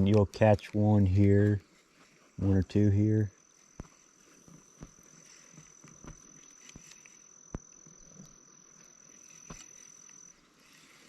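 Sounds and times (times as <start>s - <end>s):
high-pitched insect trill: 2.3s - 11.0s.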